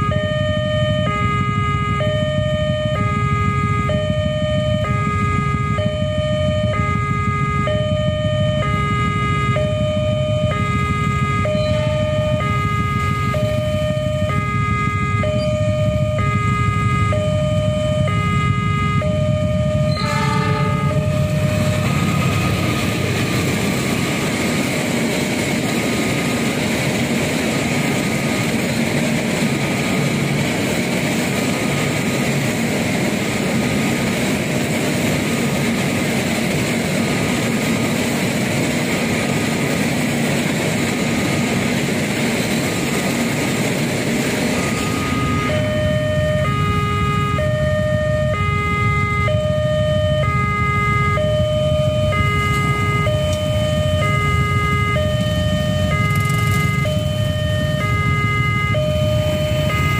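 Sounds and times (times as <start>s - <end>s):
train wheels rumbling on rails: 0.0s - 59.9s
two-note crossing alarm chime: 11.4s - 12.6s, 15.2s - 16.4s, 19.0s - 22.5s, 44.6s - 46.5s.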